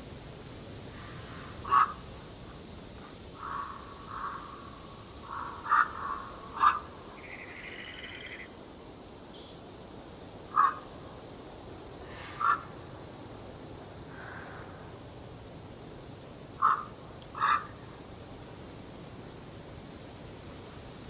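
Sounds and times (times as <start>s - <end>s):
steady background hiss: 0.0s - 21.0s
forest birds calling: 1.0s - 8.6s, 9.3s - 9.8s, 10.5s - 11.0s, 12.0s - 12.8s, 16.6s - 18.0s
buzzy bird trill: 5.3s - 8.5s, 9.3s - 9.7s.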